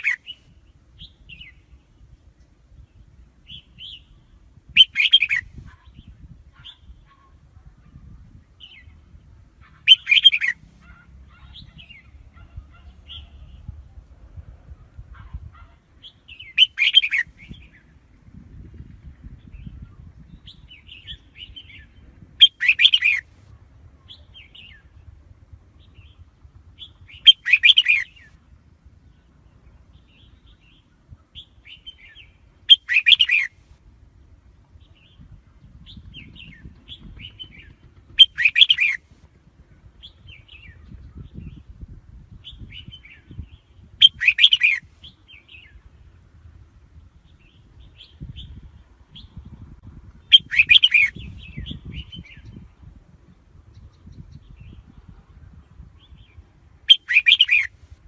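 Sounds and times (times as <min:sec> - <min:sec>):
soft bird chirps: 0:00.0 - 0:13.9, 0:14.9 - 0:18.0, 0:19.3 - 0:23.2, 0:25.8 - 0:28.4, 0:29.0 - 0:33.6, 0:42.4 - 0:45.9, 0:50.3 - 0:52.7, 0:53.7 - 0:57.8
bird song phrases: 0:00.0 - 0:23.2, 0:23.8 - 0:33.5, 0:34.2 - 0:39.0, 0:39.8 - 0:57.7.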